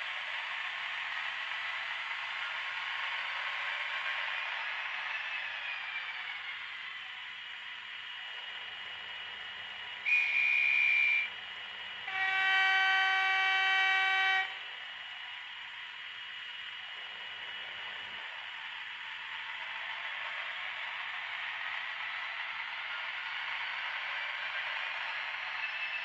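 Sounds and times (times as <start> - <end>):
locomotive horn: 10.1 - 11.3, 12.0 - 14.6
short high whistle: 10.1 - 11.3.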